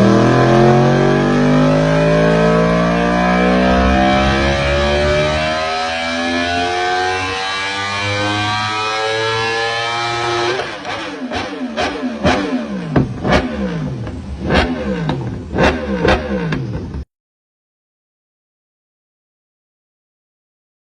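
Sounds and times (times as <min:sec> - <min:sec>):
motorcycle engine revving: 0:00.0 - 0:17.1.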